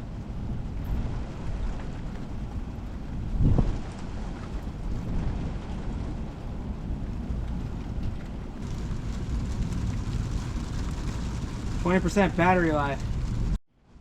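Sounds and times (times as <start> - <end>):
thunder rumble: 0.0 - 13.6
rain hiss: 8.5 - 13.6.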